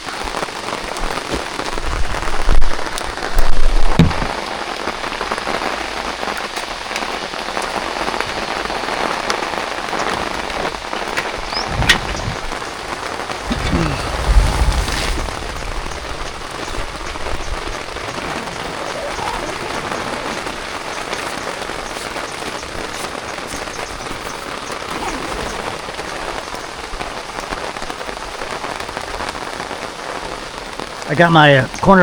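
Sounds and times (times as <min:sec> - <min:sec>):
heavy rain on an awning: 0:00.0 - 0:32.0
brief low rumble: 0:13.4 - 0:18.4.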